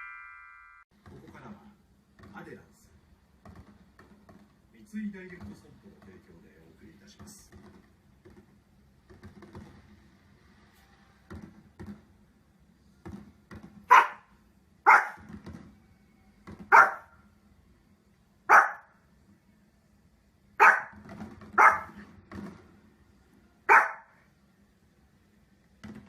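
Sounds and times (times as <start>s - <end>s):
dog barking: 13.9s - 15.3s, 16.7s - 17.2s, 18.5s - 19.0s, 20.6s - 21.0s, 21.6s - 22.0s, 23.7s - 24.2s.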